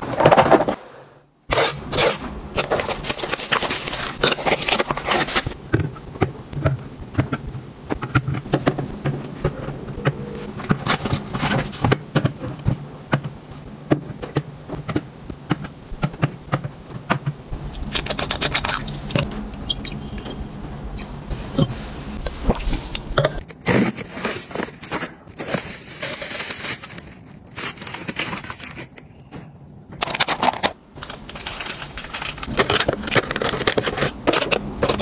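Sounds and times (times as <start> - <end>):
packaging rustling: 1.5 - 23.4, 24.0 - 29.2, 30.0 - 35.0.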